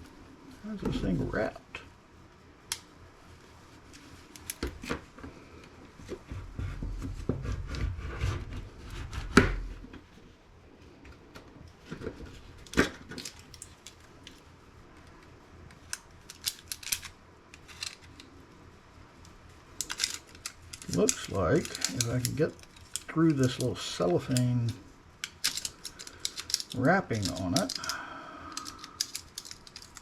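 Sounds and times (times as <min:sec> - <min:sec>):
cellophane clicks and handling: 0:12.6 - 0:14.4, 0:15.7 - 0:18.3, 0:19.2 - 0:30.0.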